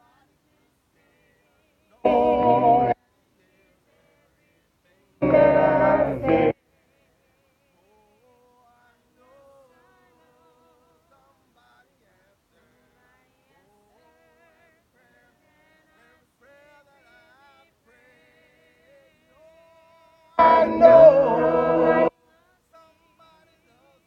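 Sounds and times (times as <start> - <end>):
faint person singing a hymn: 0.0 - 24.0.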